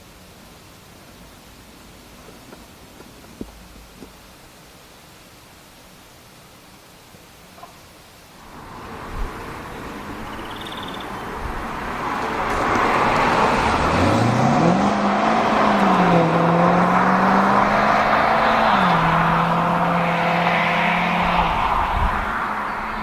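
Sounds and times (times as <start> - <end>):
car engine accelerating: 8.4 - 23.0.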